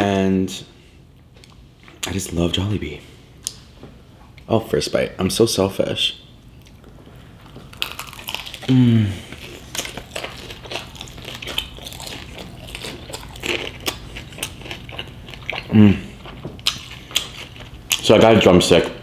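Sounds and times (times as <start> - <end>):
crunchy chewing of fried chicken: 6.6 - 18.4.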